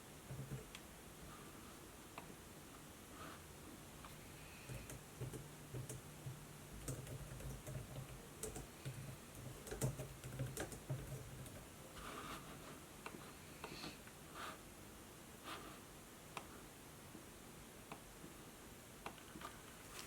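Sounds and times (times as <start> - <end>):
typing on laptop keyboard: 4.6 - 11.6
soft brushing sounds: 11.9 - 13.5, 19.4 - 20.0.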